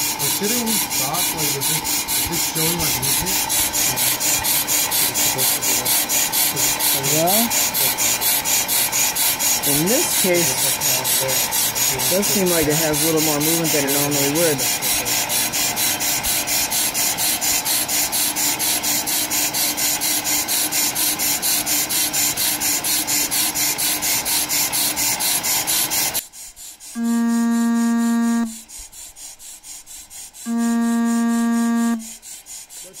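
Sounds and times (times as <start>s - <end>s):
brake lathe scraping rotor: 0.0s - 33.0s
faint motor hum: 0.0s - 33.0s
long electronic beep: 27.0s - 28.6s, 30.5s - 32.1s.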